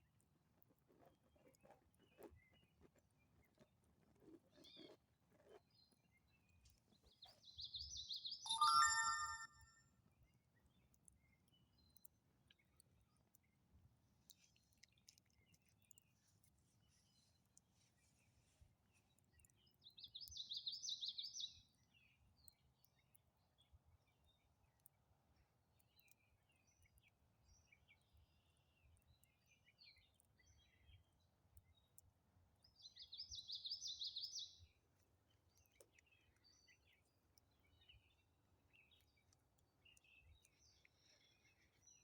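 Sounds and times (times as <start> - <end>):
faint bird chirps: 7.0 - 9.7, 32.7 - 34.6.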